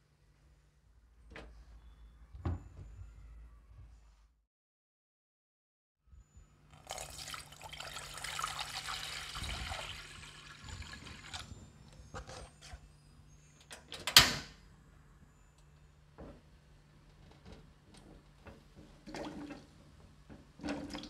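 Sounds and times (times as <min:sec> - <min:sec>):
water pouring into saucepan: 0:06.8 - 0:11.5.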